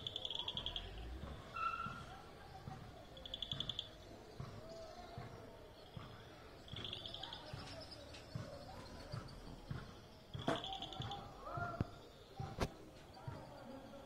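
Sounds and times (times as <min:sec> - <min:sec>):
soft whistled bird notes: 0:00.1 - 0:02.1.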